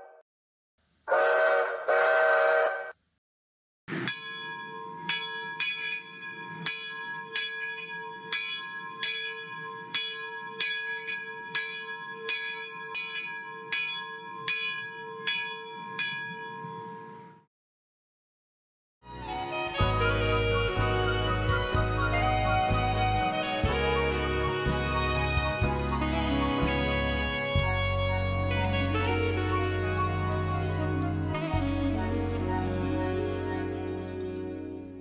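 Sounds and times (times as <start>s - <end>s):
locomotive bell ringing: 3.9s - 17.4s.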